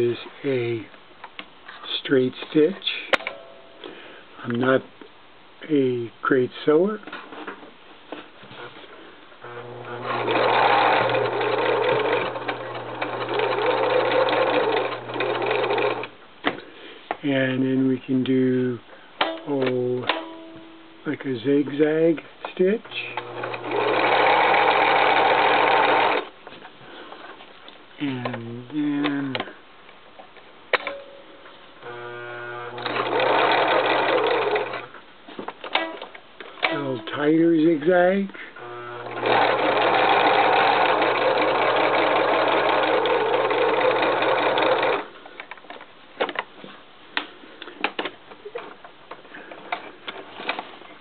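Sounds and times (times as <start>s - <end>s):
sewing machine running: 9.4s - 16.1s, 23.1s - 26.3s, 31.9s - 34.9s, 38.6s - 45.1s.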